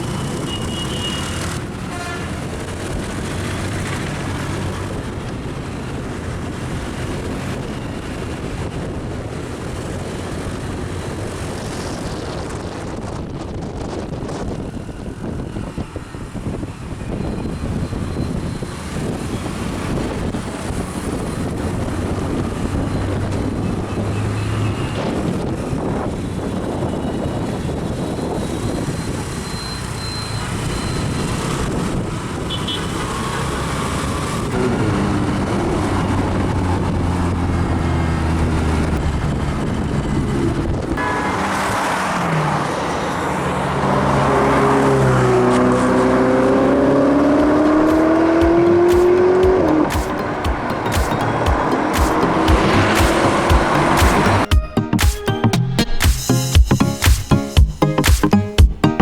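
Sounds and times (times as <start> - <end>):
road traffic noise: 0.0 - 59.0
car accelerating hard: 30.6 - 54.5
car engine revving: 33.0 - 54.5.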